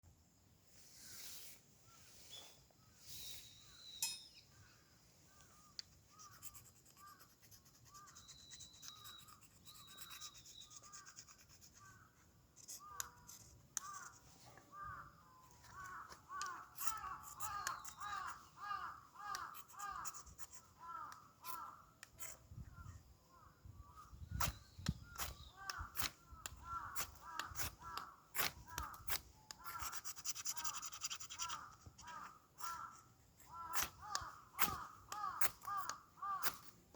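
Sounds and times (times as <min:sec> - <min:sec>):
fire starter rod scraping: 0:24.3 - 0:29.9, 0:33.5 - 0:36.8.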